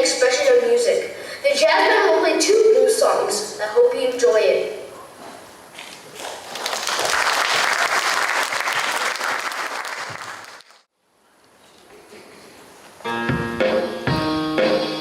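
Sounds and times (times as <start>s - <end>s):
audience applauding: 6.2s - 10.9s
jazz band playing blues: 13.1s - 15.0s.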